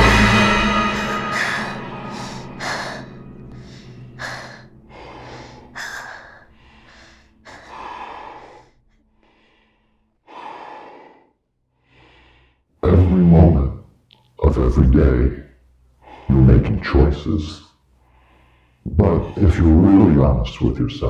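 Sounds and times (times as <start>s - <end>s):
person breathing hard: 0.0s - 11.2s.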